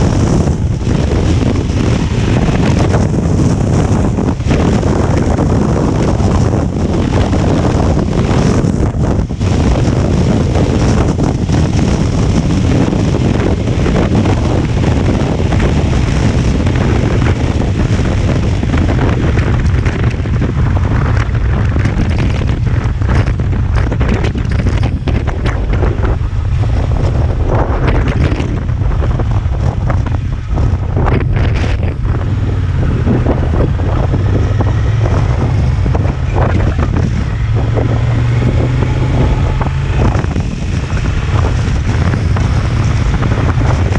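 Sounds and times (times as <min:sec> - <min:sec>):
motorcycle engine droning: 0:00.0 - 0:43.9
wind buffeting the microphone: 0:00.0 - 0:43.9.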